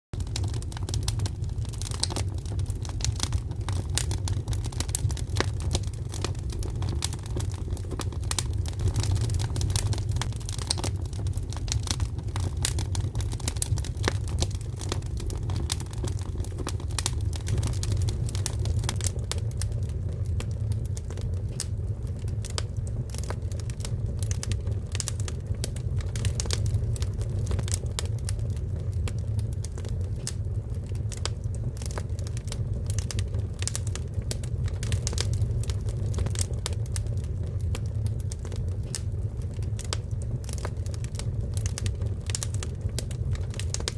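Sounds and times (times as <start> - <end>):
low fire rumble: 0.1 - 43.9
firewood crackling and popping: 0.2 - 43.9.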